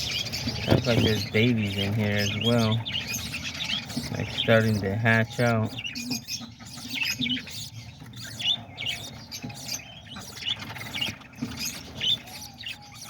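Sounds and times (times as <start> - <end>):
parrots chirping and chattering: 0.0 - 13.0.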